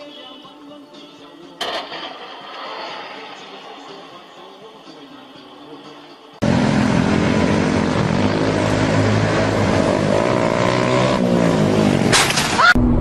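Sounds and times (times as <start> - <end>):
motorcycle engine running hard: 6.4 - 12.1.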